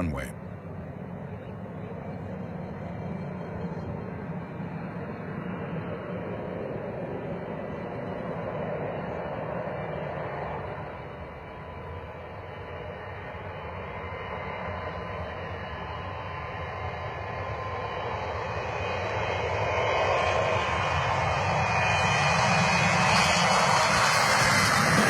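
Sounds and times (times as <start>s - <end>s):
jet engines at takeoff power: 0.0s - 25.0s.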